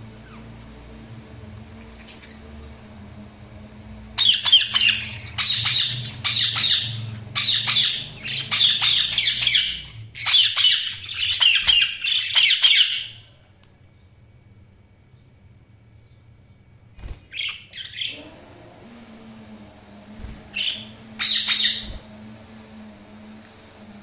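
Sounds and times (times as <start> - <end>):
budgerigars chirping and chattering: 1.8 - 2.5, 4.2 - 13.2, 17.0 - 18.2, 20.5 - 22.1.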